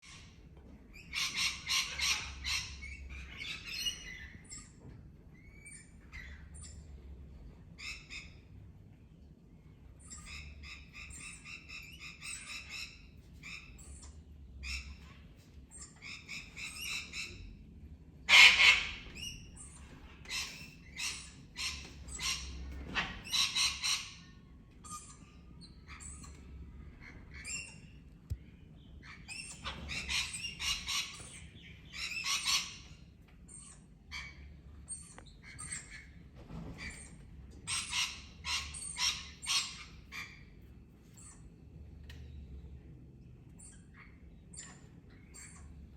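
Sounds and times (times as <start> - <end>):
parrots chirping and squawking: 0.9 - 4.7, 18.3 - 28.0, 29.0 - 41.4.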